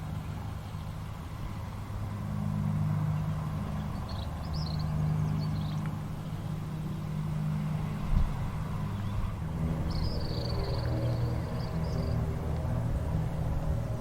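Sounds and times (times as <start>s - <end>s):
vehicle engine humming: 0.0s - 14.0s
bird chirps: 3.8s - 5.9s, 8.9s - 12.2s.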